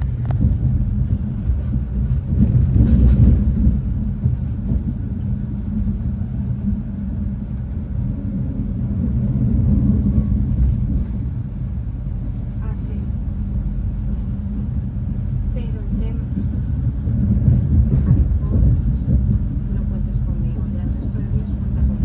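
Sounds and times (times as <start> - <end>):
train interior low rumble: 0.0 - 22.0.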